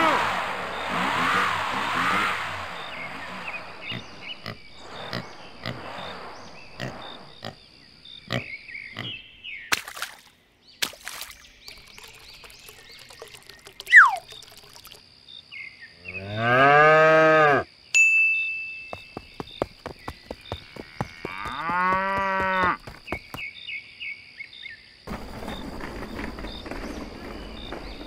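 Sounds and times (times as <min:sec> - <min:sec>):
loud falling whistle: 0:13.9 - 0:14.2
cow mooing: 0:16.2 - 0:17.6, 0:20.6 - 0:22.8.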